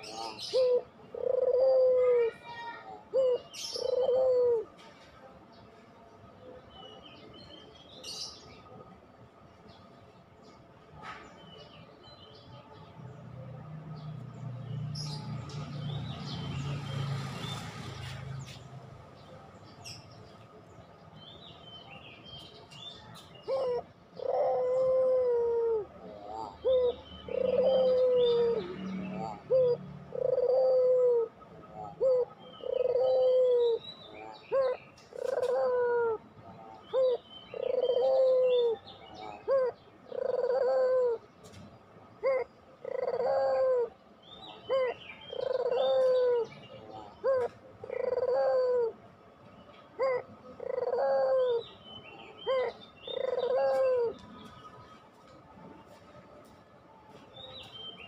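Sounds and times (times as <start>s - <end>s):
dove cooing: 0.0s - 4.9s, 23.2s - 49.1s, 50.0s - 54.6s
small birds chirping faintly: 0.0s - 58.0s.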